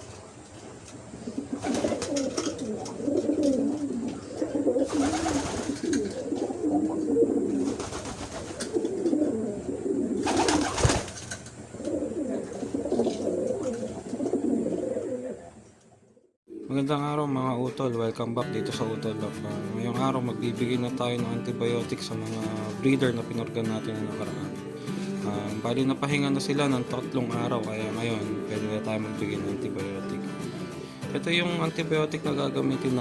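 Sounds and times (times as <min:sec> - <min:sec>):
pigeons cooing: 0:00.0 - 0:16.7, 0:27.0 - 0:33.0.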